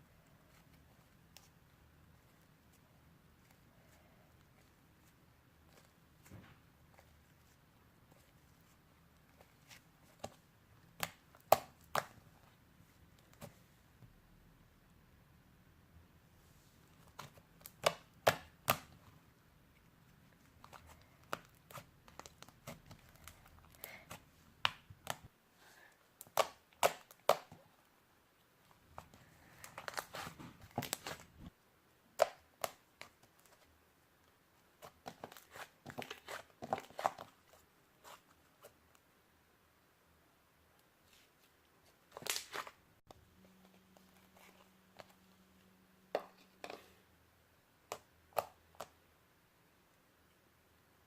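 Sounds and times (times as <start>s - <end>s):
slime kneaded by hand: 0.2s - 13.7s, 16.9s - 19.2s, 20.2s - 25.3s, 28.7s - 31.5s, 34.7s - 38.8s.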